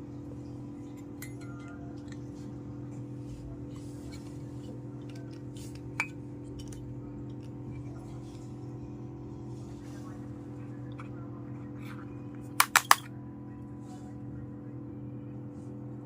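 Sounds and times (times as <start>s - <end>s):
steady low hum: 0.0s - 16.0s
small toy pieces clicking: 12.6s - 13.0s.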